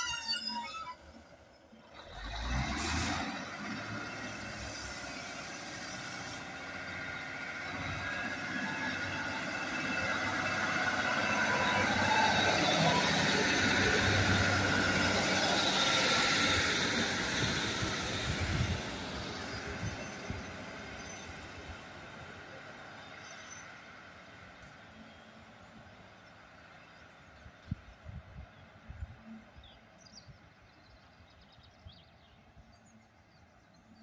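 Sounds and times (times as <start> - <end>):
wheels squealing on rails: 0.0 - 25.6
diesel train engine humming: 0.0 - 34.0.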